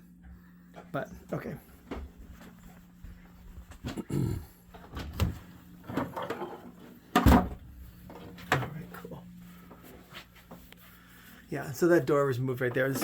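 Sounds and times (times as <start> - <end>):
knocks and clunks of handling: 4.7 - 8.8.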